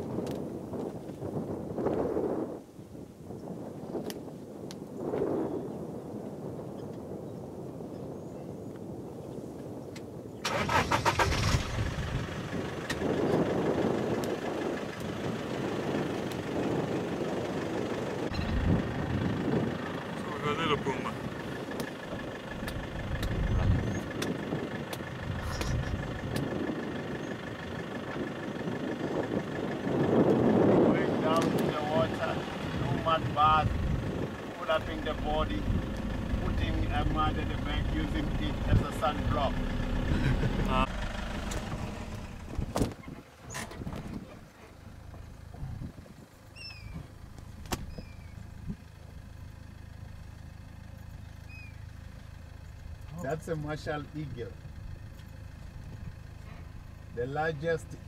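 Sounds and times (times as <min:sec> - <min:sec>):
vehicle engine idling: 0:10.4 - 0:58.0
falling bird whistles: 0:46.6 - 0:47.0, 0:47.8 - 0:48.4
sharp click: 0:47.6 - 0:48.0.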